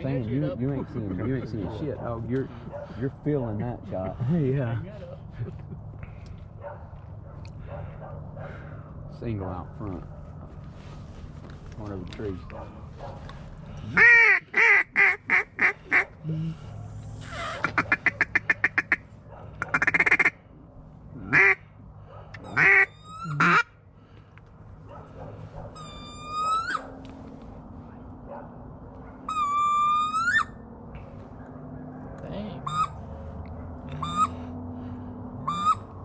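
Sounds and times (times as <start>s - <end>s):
duck call quacks: 14.0s - 16.0s, 17.3s - 19.0s, 19.7s - 20.4s, 21.3s - 21.6s, 22.5s - 23.7s, 32.6s - 33.0s, 33.9s - 34.4s, 35.4s - 35.9s
fast duck call chatter: 14.0s - 16.0s, 17.2s - 19.0s, 19.7s - 20.3s, 21.3s - 21.6s, 22.5s - 23.7s
whistled rising notes: 29.3s - 30.6s.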